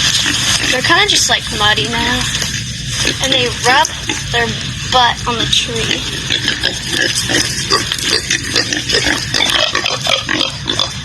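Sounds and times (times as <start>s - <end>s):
pigs grunting: 2.9s - 11.0s.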